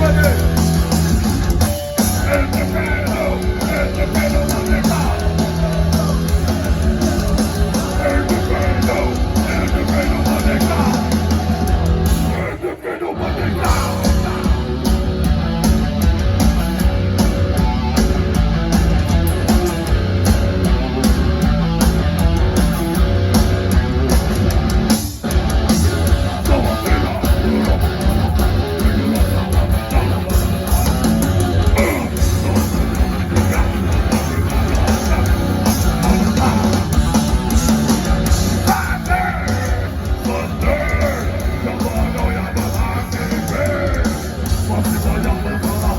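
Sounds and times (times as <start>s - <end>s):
bass guitar: 0.0s - 45.9s
distorted electric guitars: 0.0s - 45.9s
drums: 0.0s - 45.9s.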